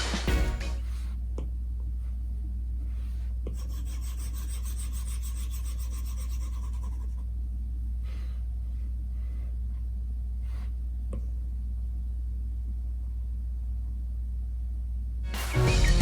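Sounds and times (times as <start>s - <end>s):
steady low hum: 0.0s - 16.0s
stylus scratching a tablet screen: 3.6s - 7.2s.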